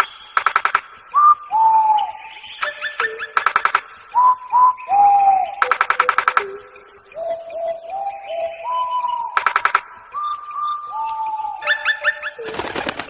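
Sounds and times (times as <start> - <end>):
bird rattling trill: 0.0 - 0.8, 3.0 - 3.8, 5.6 - 6.4, 12.4 - 13.0
bird rising chirps: 0.0 - 13.0
birds whistling: 0.0 - 13.0.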